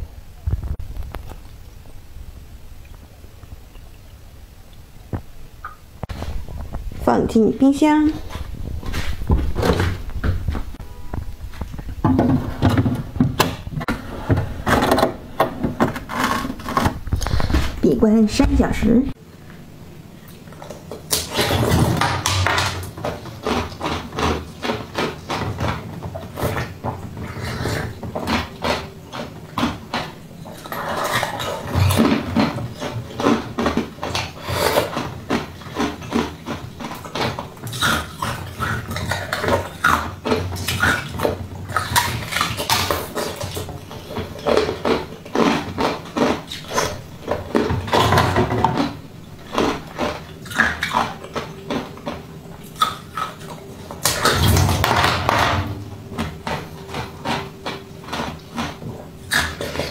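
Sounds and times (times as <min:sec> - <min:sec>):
mouth chewing jelly: 0:20.2 - 0:59.9.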